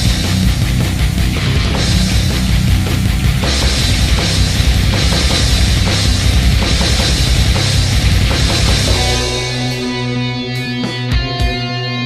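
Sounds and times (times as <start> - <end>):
distorted guitars and drums: 0.0 - 12.0
held guitar chord ringing: 1.3 - 12.0.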